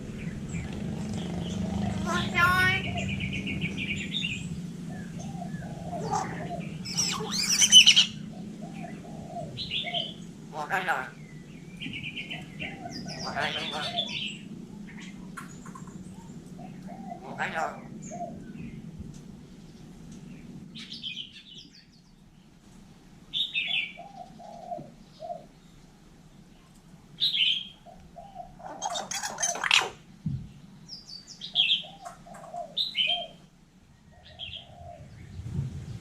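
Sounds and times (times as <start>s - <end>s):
low cooing notes: 0.0s - 3.9s, 4.9s - 11.3s
harsh scratchy bird call: 6.0s - 8.2s, 28.6s - 30.0s
myna whistled chirps: 6.8s - 8.2s.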